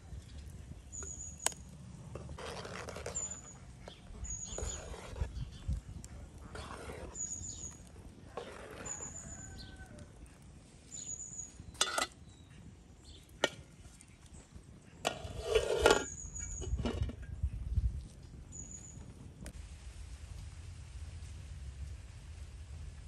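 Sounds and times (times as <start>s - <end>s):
rustling scrape: 2.1s - 5.6s, 6.4s - 9.7s, 15.0s - 17.2s.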